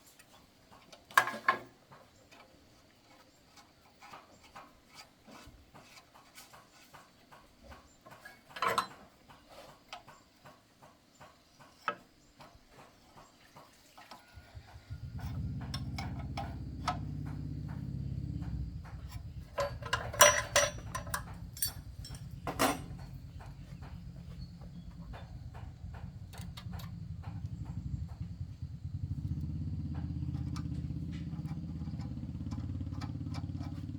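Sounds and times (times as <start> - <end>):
engine running: 14.4 - 33.9
metal clicks and knocks: 14.6 - 27.5.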